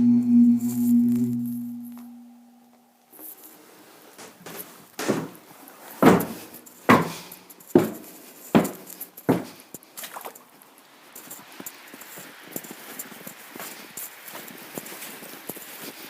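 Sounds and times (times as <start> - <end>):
echoing footsteps on hard floor: 4.2 - 5.4, 6.0 - 9.6.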